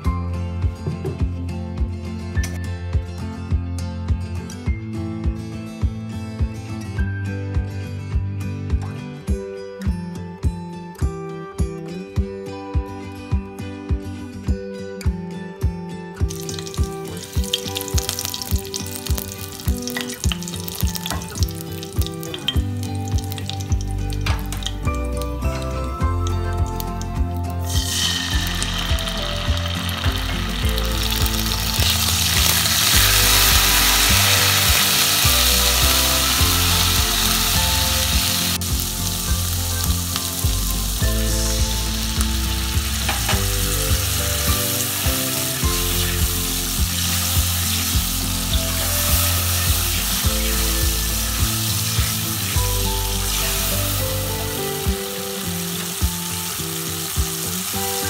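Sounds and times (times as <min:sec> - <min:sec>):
hot oil sizzling in a wok: 0:16.3 - 0:58.0.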